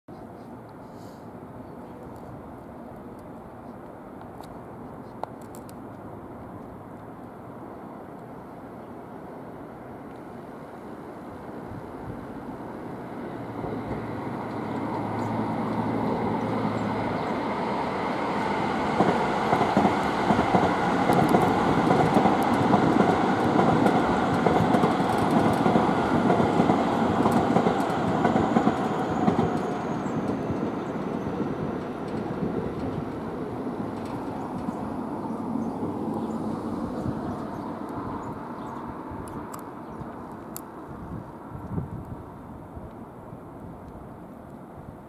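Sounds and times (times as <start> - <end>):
electric train passing: 6.1 - 41.6
wheels clacking over rail joints: 13.6 - 36.3.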